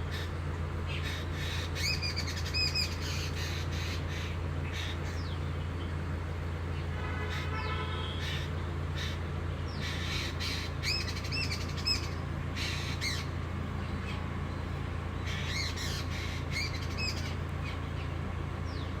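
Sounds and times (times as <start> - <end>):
steady low hum: 0.0 - 19.0
bird chirping: 0.9 - 6.0, 6.7 - 19.0.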